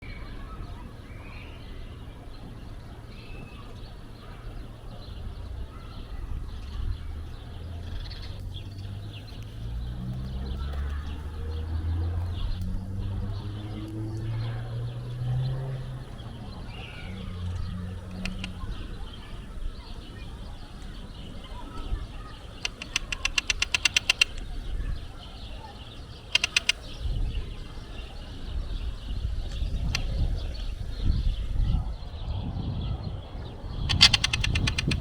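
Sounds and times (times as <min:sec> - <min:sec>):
gulls calling: 0:16.0 - 0:27.1, 0:33.9 - 0:35.0.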